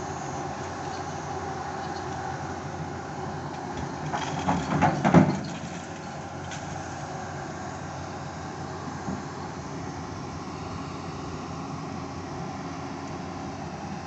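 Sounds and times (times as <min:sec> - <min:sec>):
heavy equipment running: 0:00.0 - 0:14.0
loud clanks and creaks: 0:03.8 - 0:06.6.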